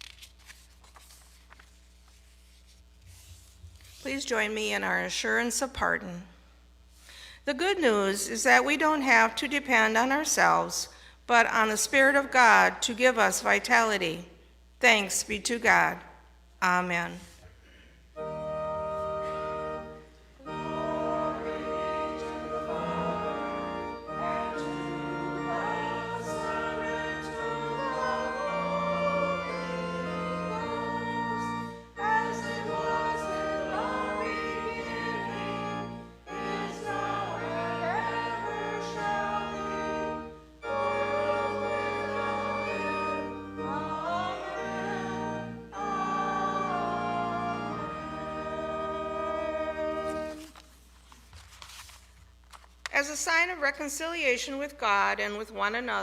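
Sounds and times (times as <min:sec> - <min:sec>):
church organ playing: 0:17.7 - 0:50.7
voices singing: 0:20.4 - 0:50.5.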